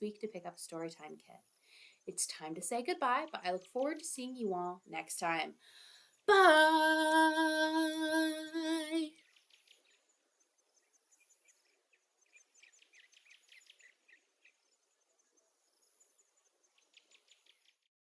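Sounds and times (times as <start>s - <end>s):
faint steady high tone: 6.3s - 9.1s.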